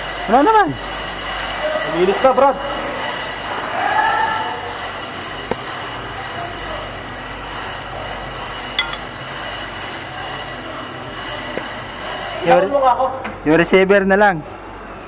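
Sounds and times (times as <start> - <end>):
engine room machinery noise: 0.0 - 12.4
sharp metallic clink: 8.8 - 9.1.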